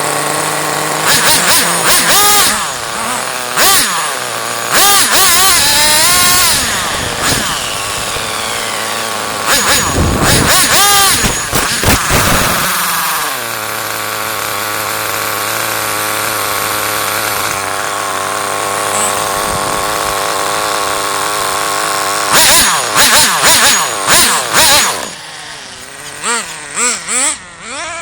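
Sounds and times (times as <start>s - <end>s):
small nitro engine revving: 0.0s - 28.0s.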